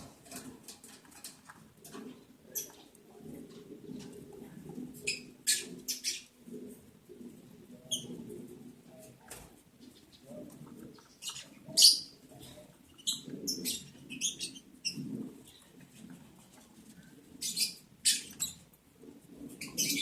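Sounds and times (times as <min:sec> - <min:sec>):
lovebirds chirping: 0:01.9 - 0:06.4, 0:07.9 - 0:08.3, 0:09.0 - 0:16.2, 0:16.9 - 0:18.8, 0:19.4 - 0:20.0.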